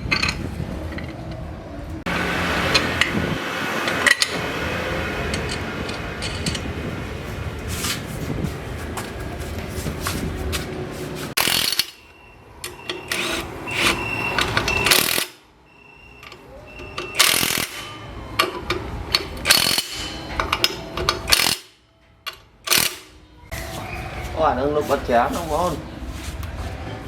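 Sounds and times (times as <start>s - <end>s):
power tool running: 13.1s - 14.1s.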